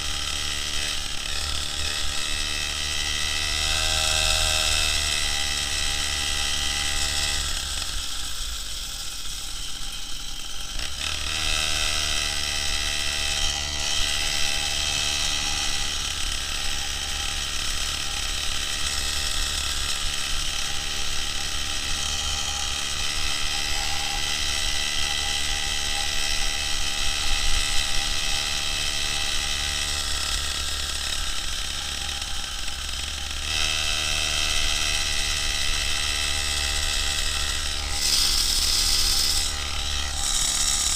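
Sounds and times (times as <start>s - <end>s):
two-stroke moped engine running: 0.0s - 40.9s.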